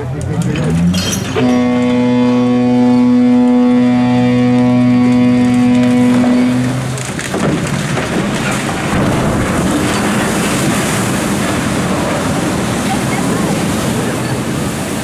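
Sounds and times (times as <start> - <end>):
water rushing and splashing: 0.0 - 15.0.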